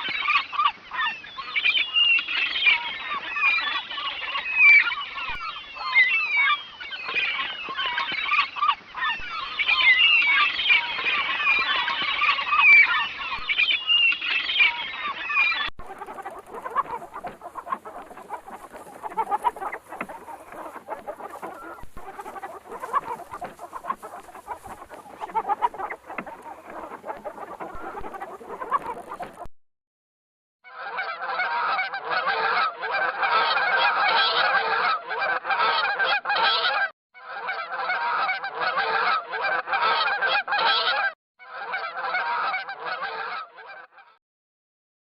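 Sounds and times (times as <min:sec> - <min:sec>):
chickens calling: 0:00.0 - 0:29.5, 0:30.9 - 0:43.9
chickens clucking: 0:15.8 - 0:29.5.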